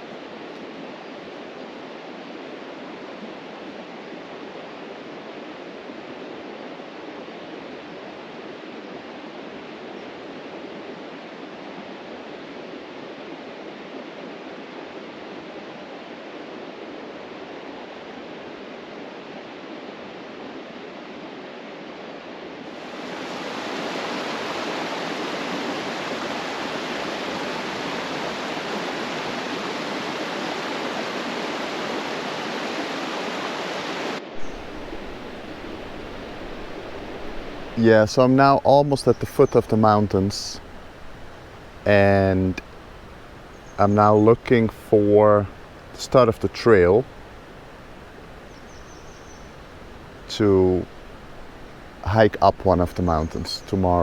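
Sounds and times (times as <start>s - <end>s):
river water rushing: 22.7s - 54.0s.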